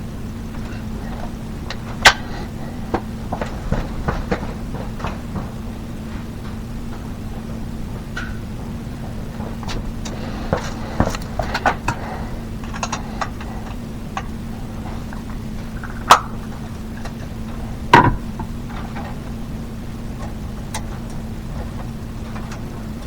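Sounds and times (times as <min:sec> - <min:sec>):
steady low hum: 0:00.0 - 0:23.0
sharp knocks: 0:18.0 - 0:18.5.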